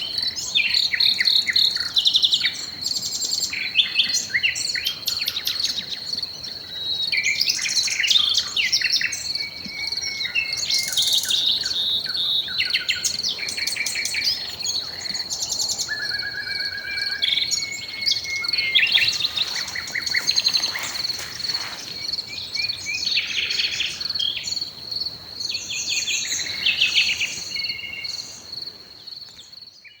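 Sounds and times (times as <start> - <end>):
songbirds singing: 0.0 - 30.0
high-pitched insect trill: 0.1 - 29.6.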